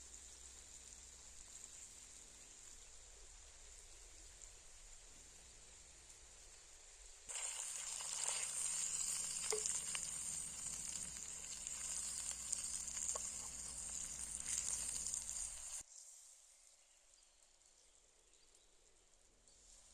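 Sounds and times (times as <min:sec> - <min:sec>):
meat sizzling on hot stone: 0:07.3 - 0:15.8.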